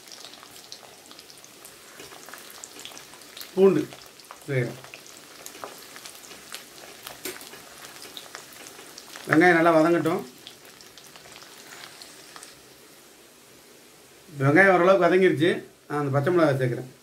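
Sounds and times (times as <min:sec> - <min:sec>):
garlic sizzling in hot oil: 0:00.0 - 0:13.4
wooden spoon stirring: 0:01.6 - 0:12.6.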